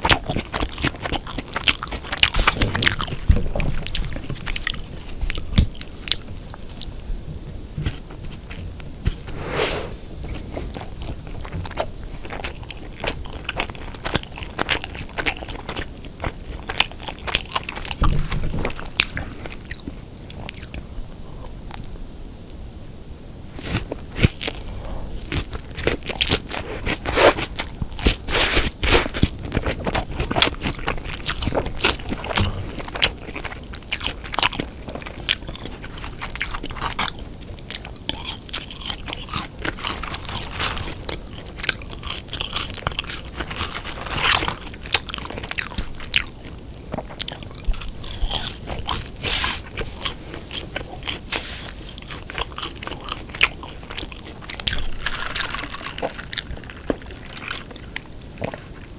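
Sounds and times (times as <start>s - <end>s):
chewing and crunching food: 0.0s - 22.7s, 23.4s - 58.9s.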